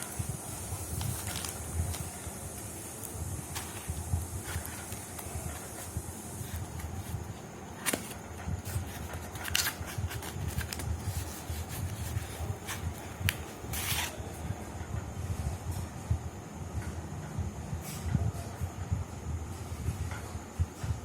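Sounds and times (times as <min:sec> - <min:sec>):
rustling scrapes of handling: 0:00.0 - 0:14.2.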